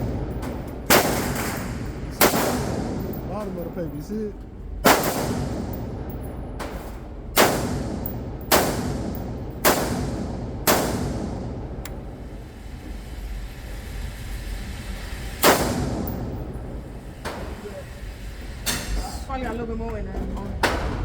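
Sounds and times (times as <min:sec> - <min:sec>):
handgun shots echoing indoors: 0:00.0 - 0:03.3, 0:04.8 - 0:12.0, 0:15.4 - 0:16.6.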